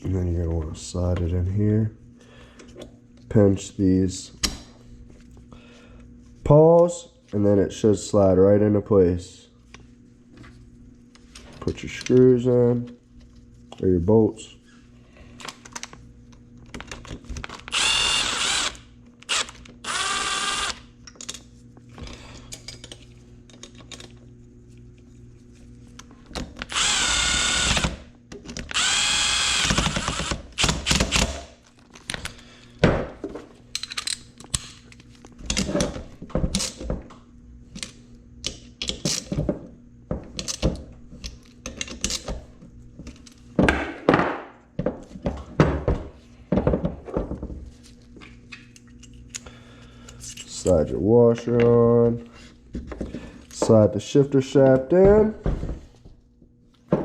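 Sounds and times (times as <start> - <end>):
cordless drill driving bolts: 17.7 - 20.8, 26.7 - 28.0, 28.7 - 31.3
clicks and knocks of tools: 21.0 - 24.2, 33.7 - 39.4, 40.3 - 42.4.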